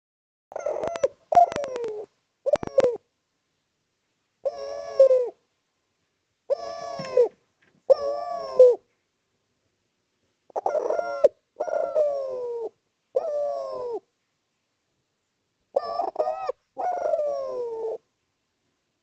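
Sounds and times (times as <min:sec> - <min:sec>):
dove cooing: 0:00.5 - 0:03.1, 0:04.4 - 0:05.4, 0:06.5 - 0:08.9, 0:10.5 - 0:14.1, 0:15.7 - 0:18.1.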